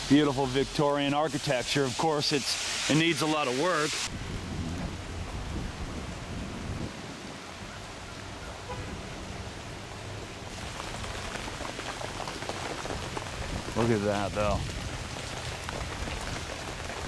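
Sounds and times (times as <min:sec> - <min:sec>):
rain-like hiss: 0:00.0 - 0:17.0
low rumble: 0:04.1 - 0:06.9.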